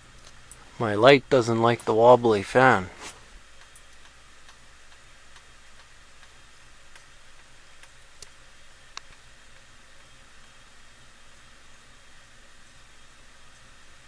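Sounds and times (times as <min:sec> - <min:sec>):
light fitting ticking: 0:03.6 - 0:09.2.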